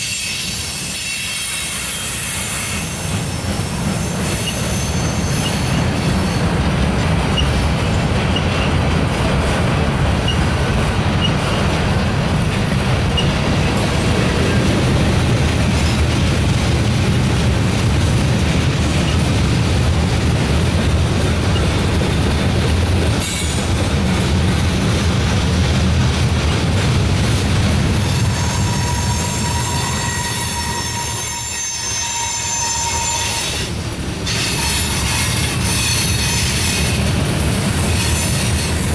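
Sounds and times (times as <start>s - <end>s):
high wheel squeal: 0.0s - 6.4s, 13.1s - 14.7s, 28.1s - 37.0s
train wheels rumbling on rails: 0.0s - 38.9s.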